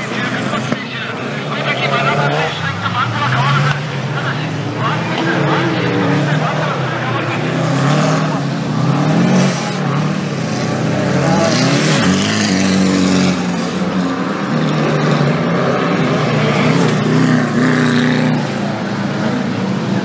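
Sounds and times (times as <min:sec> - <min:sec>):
off-road vehicle engines revving: 0:00.0 - 0:20.0.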